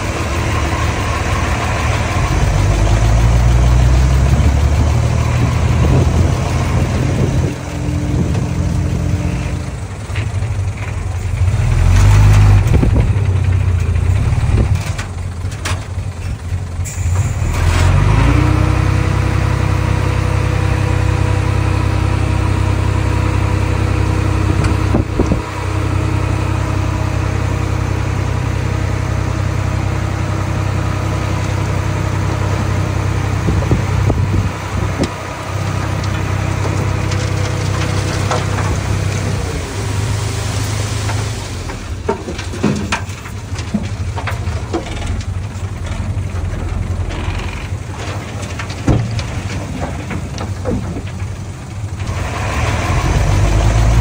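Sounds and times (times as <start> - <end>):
bulldozer diesel engine running: 0.0 - 54.0
sharp engine knocks: 41.0 - 52.2.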